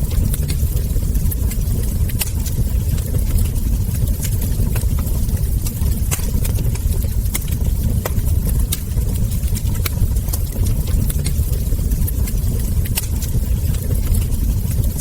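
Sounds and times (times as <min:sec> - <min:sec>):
low fire rumble: 0:00.0 - 0:15.0
wood fire crackling: 0:00.0 - 0:15.0.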